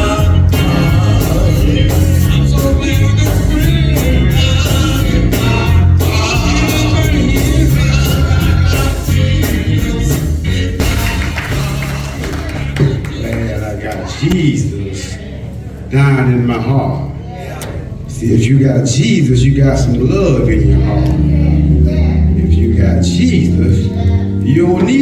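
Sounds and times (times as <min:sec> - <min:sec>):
steady drum beats: 0:00.0 - 0:13.8
heavy bass line: 0:00.0 - 0:14.9, 0:15.7 - 0:25.0
gospel singing with band: 0:00.0 - 0:25.0.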